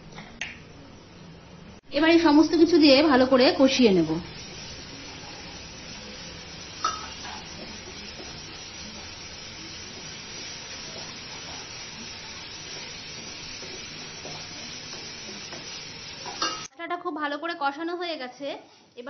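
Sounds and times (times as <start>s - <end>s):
spices sizzling in hot oil: 1.8s - 16.7s.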